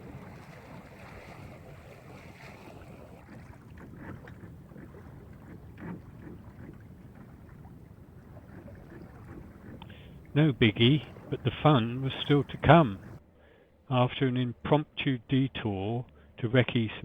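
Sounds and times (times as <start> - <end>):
water rushing along hull: 0.0 - 13.2
wind buffeting microphone: 0.0 - 13.2.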